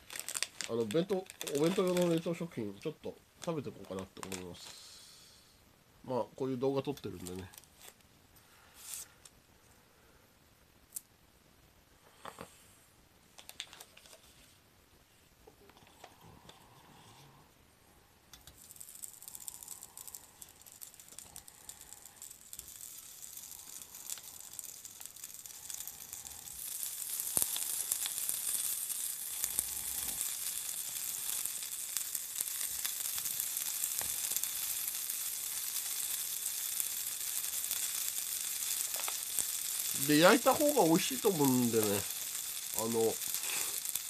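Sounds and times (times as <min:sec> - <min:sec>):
patties sizzling on hot plate: 0:00.0 - 0:02.6, 0:18.4 - 0:44.0.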